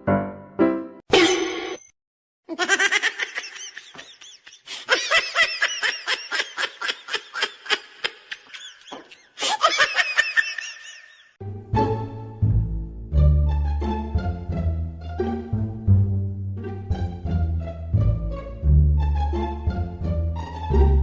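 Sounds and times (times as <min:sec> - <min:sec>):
high-pitched laughter: 0:02.5 - 0:11.4.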